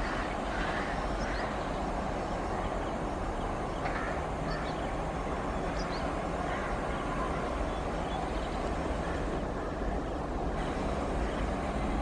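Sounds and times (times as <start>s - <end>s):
train running along track: 0.0s - 12.0s.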